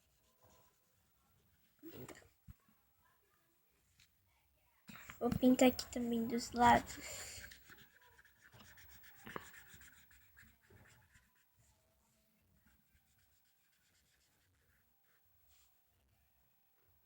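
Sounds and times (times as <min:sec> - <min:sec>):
marker strokes on paper: 0:00.0 - 0:02.4, 0:04.9 - 0:15.9.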